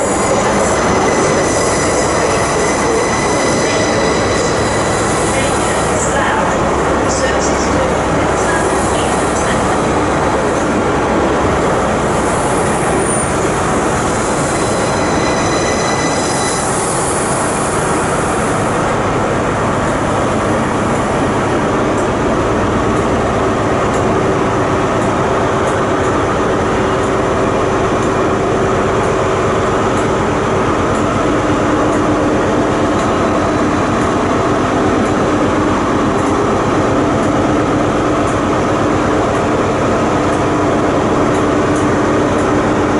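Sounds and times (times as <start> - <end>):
train wheels squealing: 0.0 - 5.9, 12.2 - 18.6
train running through station: 0.0 - 42.9.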